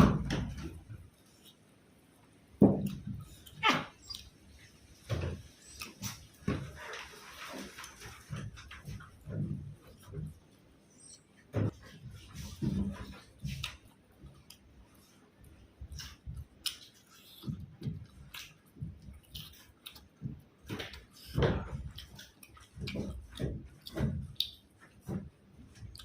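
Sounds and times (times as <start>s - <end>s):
person chewing food: 2.8s - 8.3s, 11.9s - 26.0s.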